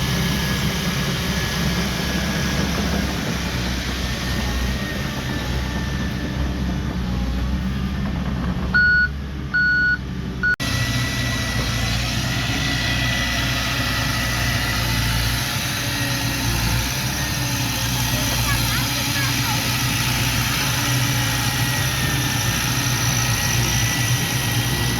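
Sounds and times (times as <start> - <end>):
diesel machinery engines running: 0.0 - 24.9
reversing alarm beeps: 8.8 - 10.6.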